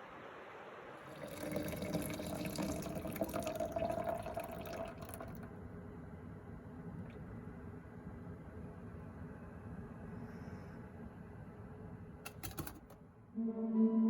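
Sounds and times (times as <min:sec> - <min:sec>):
running water: 0:01.0 - 0:05.4.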